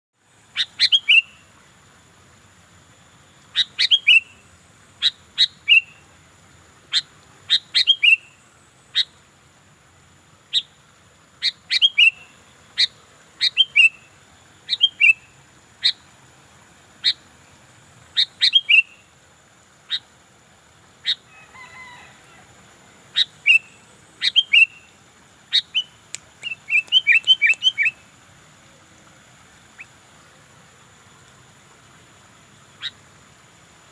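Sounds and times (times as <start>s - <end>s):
bulbul calling: 0.6s - 1.5s, 3.5s - 4.4s, 5.0s - 6.0s, 6.9s - 9.2s, 11.4s - 14.1s, 14.7s - 16.0s, 18.1s - 19.0s, 23.1s - 28.1s, 29.7s - 30.0s, 32.8s - 33.0s.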